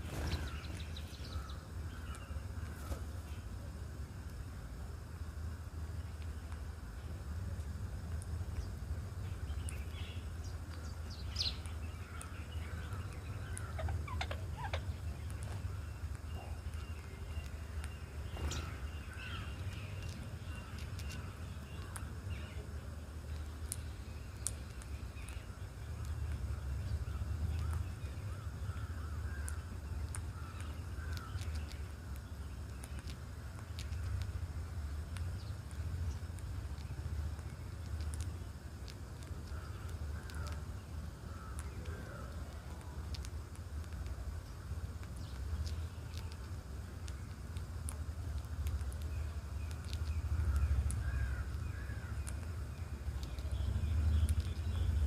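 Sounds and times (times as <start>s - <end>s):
birds chirping: 0.0s - 7.6s, 8.3s - 55.0s
steady low rumble: 0.0s - 55.0s
high bird chirps: 9.3s - 22.6s.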